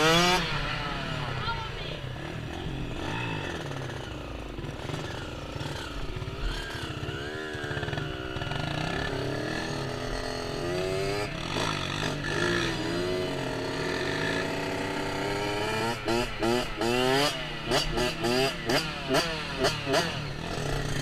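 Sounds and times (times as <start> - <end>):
dirt bike engine revving: 0.0 - 21.0
quad engine revving: 0.0 - 21.0.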